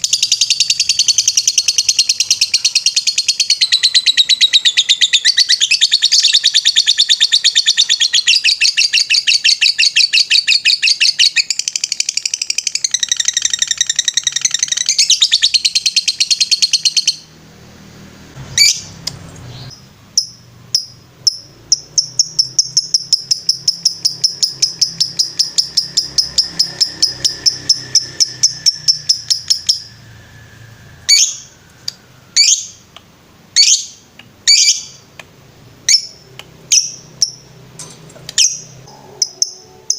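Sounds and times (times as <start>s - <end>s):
lovebird fast trill: 0.0s - 17.4s, 19.6s - 32.9s, 38.4s - 39.9s
sharp bird chirps: 0.0s - 17.4s, 18.5s - 33.0s, 33.6s - 35.2s, 35.8s - 37.6s, 38.3s - 39.9s
low hum: 24.2s - 33.6s.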